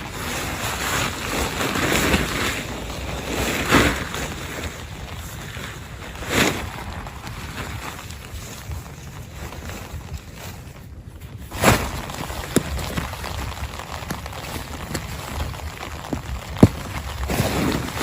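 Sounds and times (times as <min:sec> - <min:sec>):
heavy rain: 0:00.0 - 0:18.0
wind gusts: 0:00.0 - 0:18.0.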